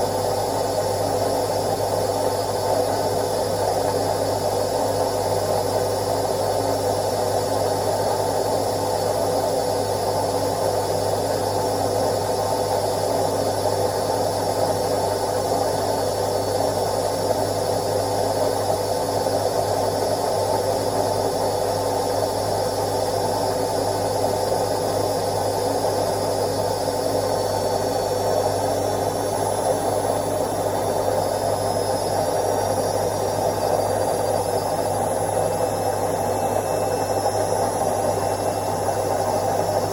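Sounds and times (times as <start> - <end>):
washing machine motor hum: 0.0 - 39.9
high-pitched whine: 25.6 - 39.9.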